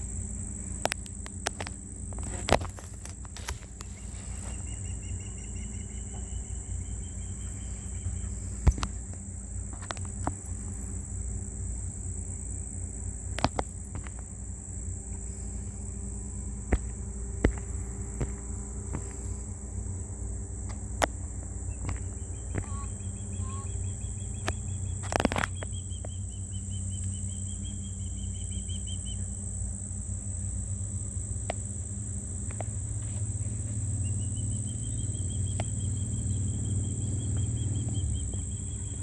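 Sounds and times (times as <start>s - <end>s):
high-pitched insect-like whine: 0.0s - 39.0s
sharp clicks: 0.8s - 4.1s, 13.3s - 14.3s
bird trill: 3.4s - 14.1s, 18.0s - 29.8s, 32.6s - 39.0s.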